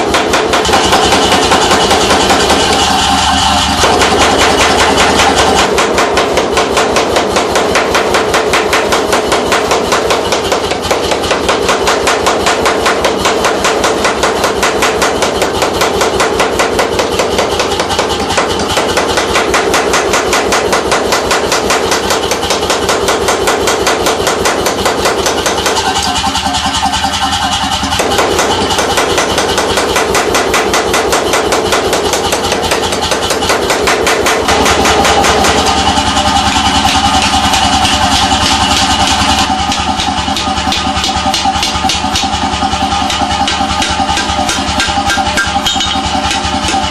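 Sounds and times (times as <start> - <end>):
forging hammer blows: 0.0 - 46.9
mechanical drone: 0.0 - 46.9.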